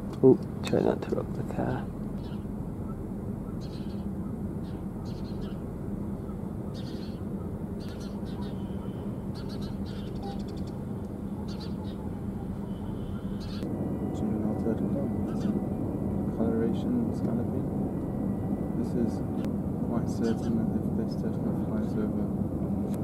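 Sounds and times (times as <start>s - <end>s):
steady low hum: 0.0s - 23.0s
small birds chirping: 1.8s - 13.7s, 14.9s - 16.5s, 20.1s - 20.6s.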